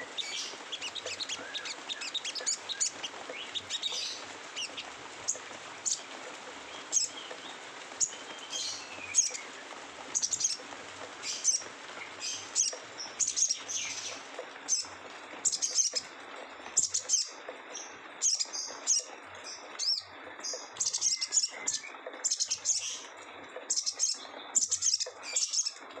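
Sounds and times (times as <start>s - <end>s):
songbird chattering calls: 0.0s - 6.0s.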